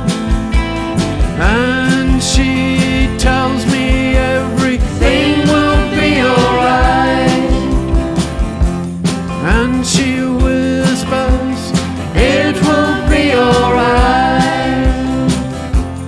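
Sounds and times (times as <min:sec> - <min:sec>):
kick drum beat: 0:00.0 - 0:09.8
country band playing live: 0:00.0 - 0:16.0.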